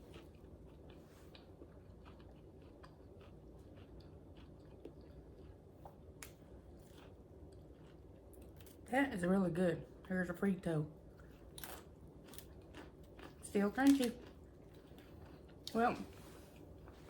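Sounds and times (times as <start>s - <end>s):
faint chewing: 0.0s - 8.8s, 11.1s - 17.0s.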